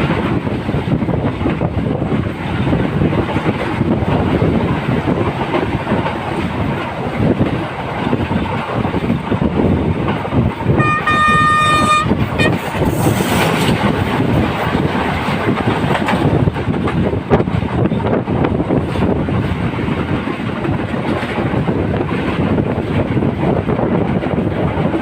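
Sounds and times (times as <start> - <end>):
train rumbling and clattering on rails: 0.0 - 25.0
train horn: 10.8 - 12.8.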